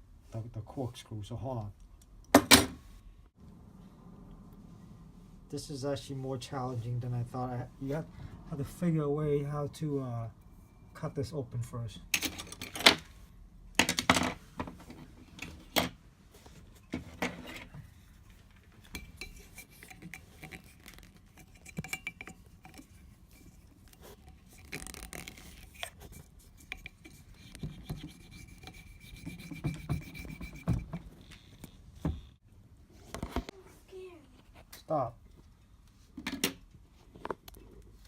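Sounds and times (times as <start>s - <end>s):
foil scraping and rubbing: 24.5s - 26.6s.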